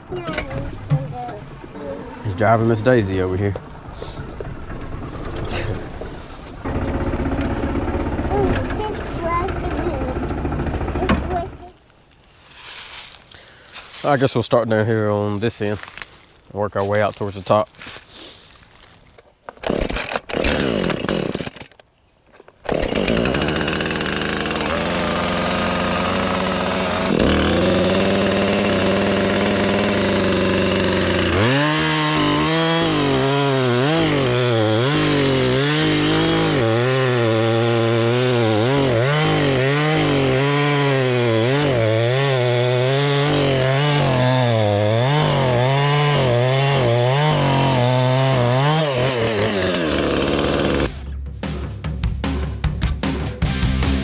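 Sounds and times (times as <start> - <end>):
chainsaw cutting logs: 0.4 - 11.8, 19.6 - 21.8, 22.6 - 50.9.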